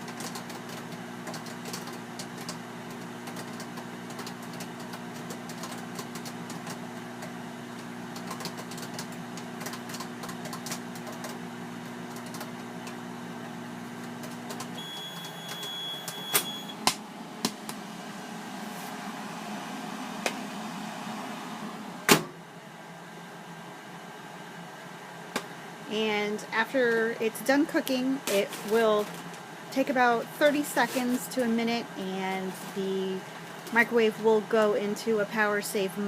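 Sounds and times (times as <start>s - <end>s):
popcorn popping: 0.0s - 13.1s
microwave fan running: 0.0s - 36.0s
microwave humming: 0.0s - 36.0s
long high beep: 14.8s - 16.8s.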